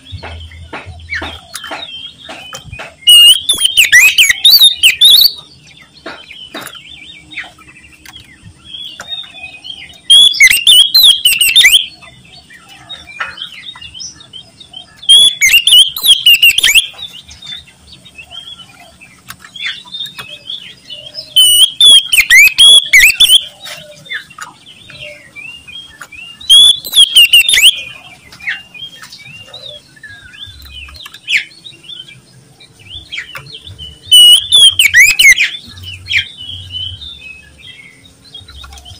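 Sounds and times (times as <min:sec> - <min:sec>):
songbird singing: 0:00.0 - 0:38.9
bird chirps and whistles: 0:00.1 - 0:05.5, 0:10.0 - 0:12.0, 0:15.0 - 0:17.0, 0:21.0 - 0:23.5, 0:26.4 - 0:28.0, 0:33.2 - 0:37.0.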